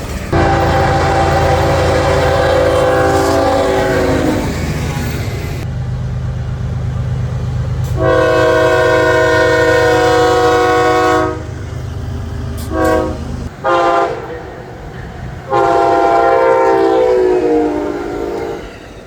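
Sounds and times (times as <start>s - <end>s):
low train rumble: 0.0s - 19.0s
locomotive air horn blasts: 0.3s - 5.6s, 7.9s - 11.6s, 12.6s - 14.4s, 15.5s - 18.7s.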